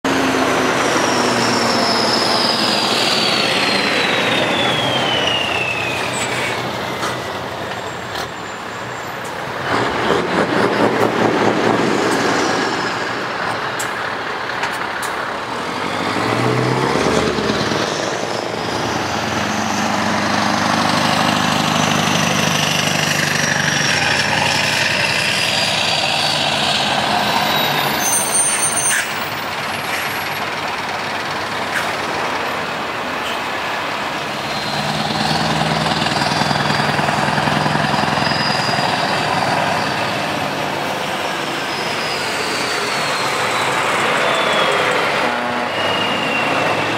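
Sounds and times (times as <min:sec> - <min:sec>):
truck engines passing by: 0:00.0 - 0:46.9.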